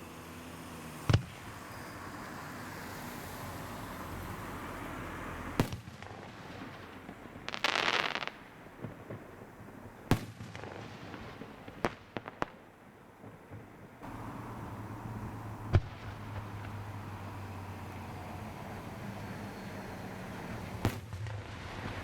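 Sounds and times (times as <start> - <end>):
fireworks crackling: 5.5 - 22.0
fireworks popping: 5.6 - 14.4, 15.2 - 17.3, 20.7 - 22.0
fireworks bangs: 5.6 - 17.4, 20.6 - 22.0
fireworks hissing: 14.0 - 17.8.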